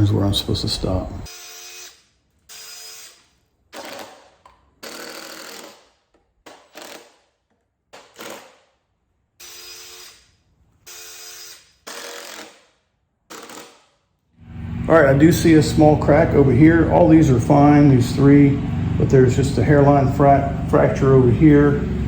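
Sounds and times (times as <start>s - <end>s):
power drill drilling into wood: 1.3s - 7.3s, 8.0s - 8.7s, 9.4s - 14.0s.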